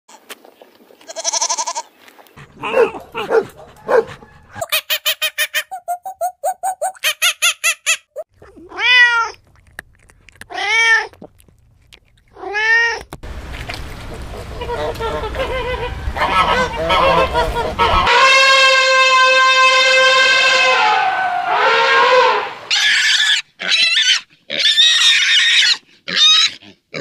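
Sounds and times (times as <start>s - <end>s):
goat bleating: 1.0s - 1.9s, 14.6s - 18.1s
ducks quacking: 2.4s - 5.8s, 13.9s - 18.4s
monkey cries: 22.7s - 26.6s.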